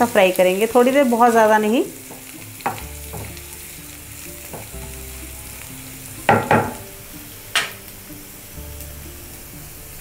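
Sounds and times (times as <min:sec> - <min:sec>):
spices sizzling in hot oil: 0:00.0 - 0:10.0
spatula striking a pan: 0:02.1 - 0:03.4, 0:06.3 - 0:06.9, 0:07.5 - 0:07.8.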